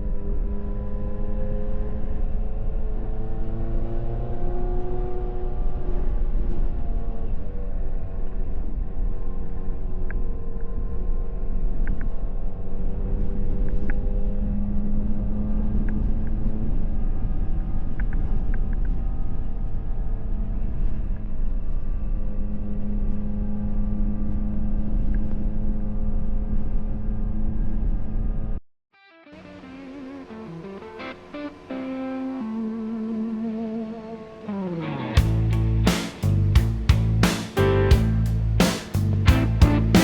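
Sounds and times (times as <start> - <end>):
wind and road noise: 0.0 - 28.6, 33.0 - 40.0
motorcycle engine cruising: 29.4 - 40.0.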